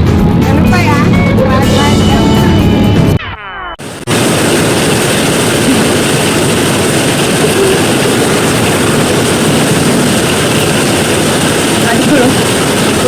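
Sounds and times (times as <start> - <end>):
heavy rain pouring: 3.8 - 13.0.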